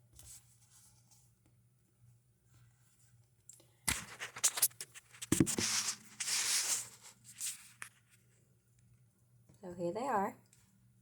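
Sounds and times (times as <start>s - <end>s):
rustling and rubbing: 3.9s - 8.3s.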